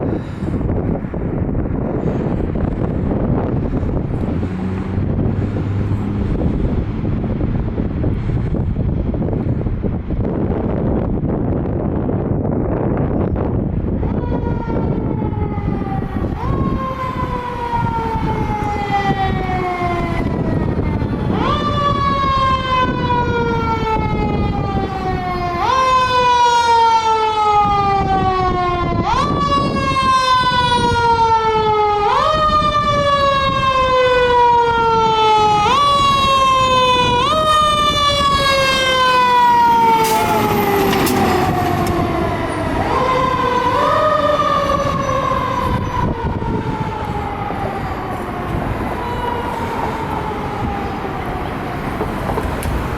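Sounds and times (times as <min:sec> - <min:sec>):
truck engine rumble: 0:00.0 - 0:52.9
mechanical siren wailing: 0:12.8 - 0:52.9.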